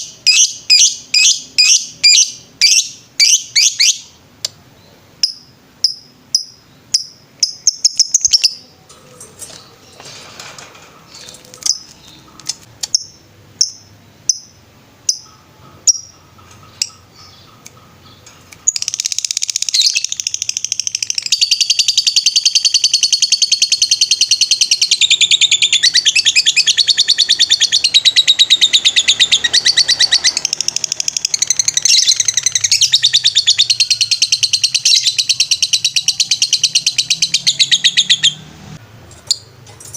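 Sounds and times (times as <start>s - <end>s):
lovebird chirps: 0.1s - 4.2s, 4.8s - 10.1s, 11.1s - 38.4s
lovebird rapid trill: 11.1s - 38.4s.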